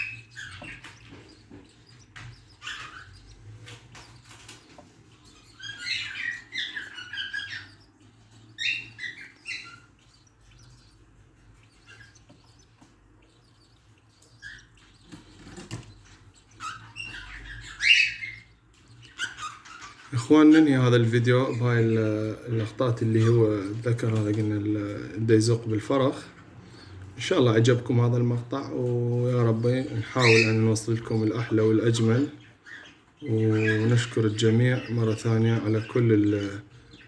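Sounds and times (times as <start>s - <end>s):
parrot chick begging chirps: 0.0s - 20.8s, 29.2s - 37.0s.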